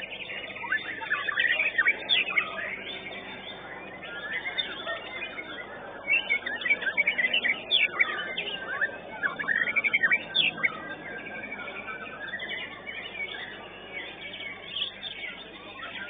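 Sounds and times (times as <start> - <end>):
birds chirping and whistling: 0.0 - 16.0.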